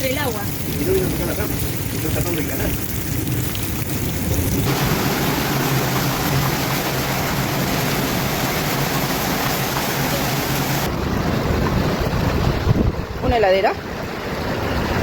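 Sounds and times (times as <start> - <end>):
storm water rushing: 0.0 - 15.0.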